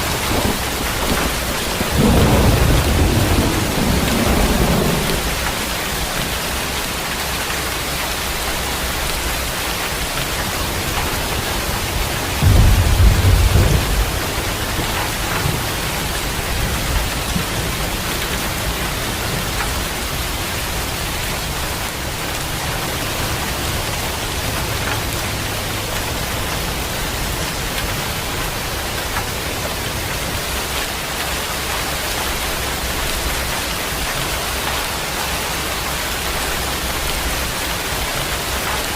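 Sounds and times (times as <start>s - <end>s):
low rumble of thunder: 0.0s - 7.0s, 10.0s - 30.4s
heavy rain hissing: 0.0s - 38.9s.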